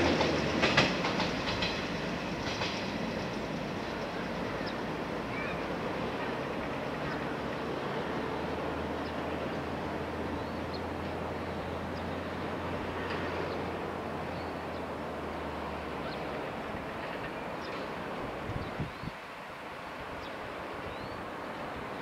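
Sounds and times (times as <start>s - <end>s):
distant electric train hum: 0.0s - 22.0s
wind noise on microphone: 18.3s - 19.2s.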